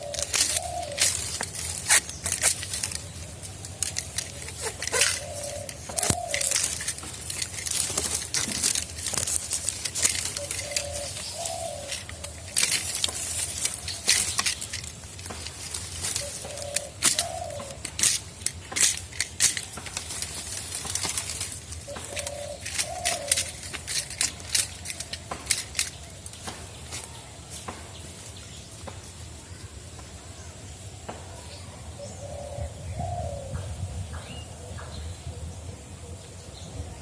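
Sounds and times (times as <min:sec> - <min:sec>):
dove cooing: 0:00.0 - 0:26.0, 0:32.0 - 0:36.3.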